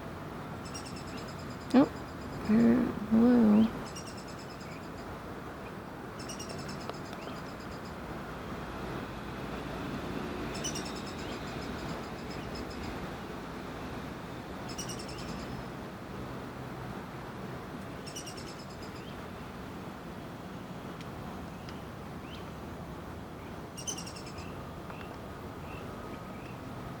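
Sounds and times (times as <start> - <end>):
woodpecker fledgling calling: 0.6 - 2.5, 3.6 - 5.1, 6.2 - 8.0, 10.5 - 13.0, 14.7 - 15.6, 18.0 - 19.2, 23.8 - 25.1
faint bird chirps: 0.6 - 2.6, 3.5 - 5.1, 6.2 - 8.0, 10.5 - 13.0, 14.7 - 15.6, 18.0 - 19.2, 23.8 - 26.6.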